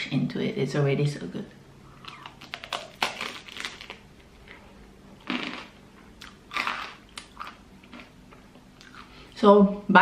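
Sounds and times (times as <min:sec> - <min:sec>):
person chewing: 0:01.9 - 0:09.4
crunchy bites: 0:02.0 - 0:04.6, 0:05.2 - 0:08.1.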